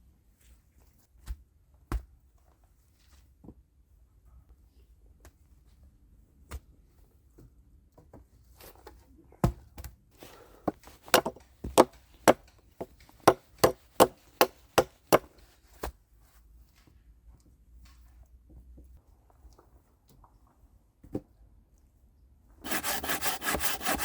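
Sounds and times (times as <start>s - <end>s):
wood being chopped: 11.1s - 12.5s, 13.2s - 15.3s.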